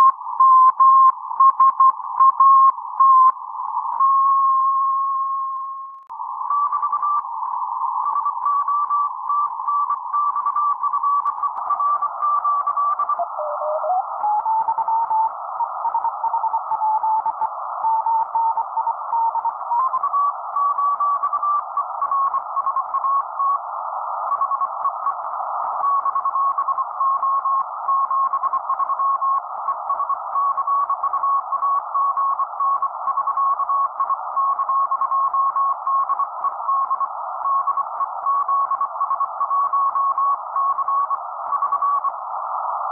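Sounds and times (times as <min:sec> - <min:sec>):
radio receiver hiss: 0:02.8 - 0:04.0, 0:06.1 - 0:42.9
radio carrier whistle: 0:10.3 - 0:20.2.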